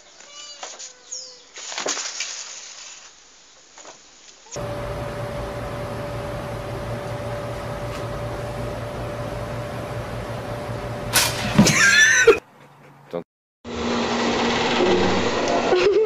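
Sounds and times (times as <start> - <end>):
kitchen appliance hum: 4.6 - 11.7
toaster popping up: 11.1 - 11.8.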